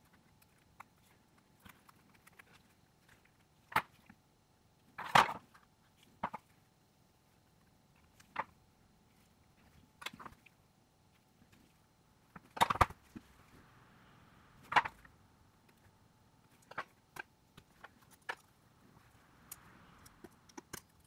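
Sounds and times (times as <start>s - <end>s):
hand tools clicking and tapping: 19.4s - 21.0s.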